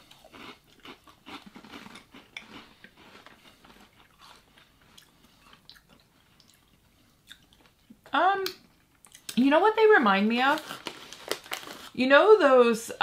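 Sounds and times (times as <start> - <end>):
crunching and chewing churros: 0.0 - 8.0.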